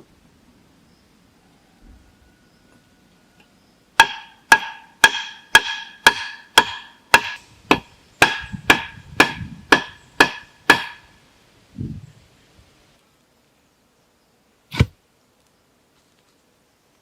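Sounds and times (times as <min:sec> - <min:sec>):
hand tool striking hard object: 0:04.0 - 0:11.1.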